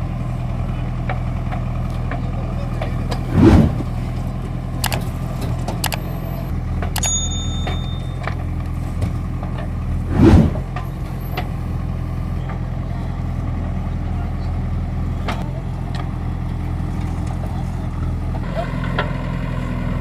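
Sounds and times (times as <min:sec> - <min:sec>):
heavy diesel engine running: 0:00.0 - 0:20.0
metallic clanks and knocks: 0:06.8 - 0:08.4.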